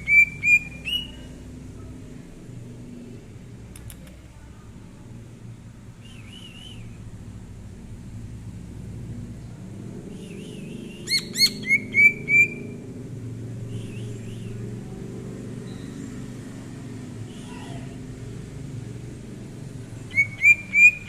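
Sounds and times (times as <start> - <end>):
bird singing whistled notes: 0.0 - 1.3, 6.0 - 7.0, 10.2 - 12.7, 13.7 - 14.6, 20.1 - 21.0
low steady rumble: 0.0 - 21.0.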